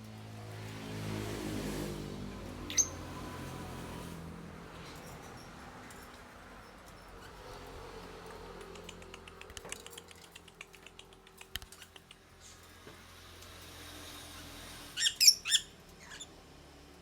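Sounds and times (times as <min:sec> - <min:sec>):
faint small clicks and taps: 0:08.6 - 0:12.3.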